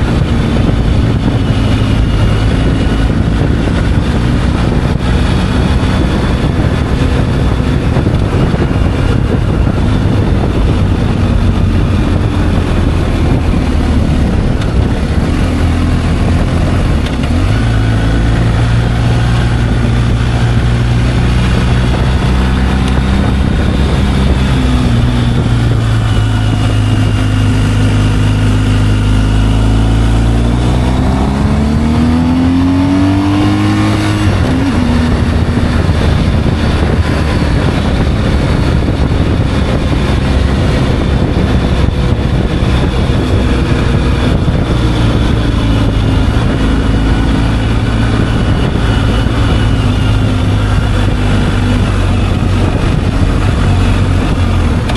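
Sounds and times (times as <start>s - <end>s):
motorcycle engine running: 0.0s - 54.9s
wind rushing: 0.0s - 54.9s.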